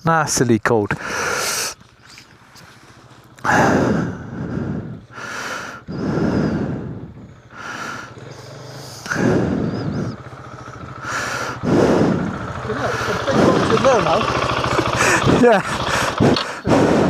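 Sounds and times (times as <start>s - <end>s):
person breathing heavily: 0.9s - 1.9s, 2.8s - 10.2s, 11.0s - 13.6s, 14.6s - 17.0s.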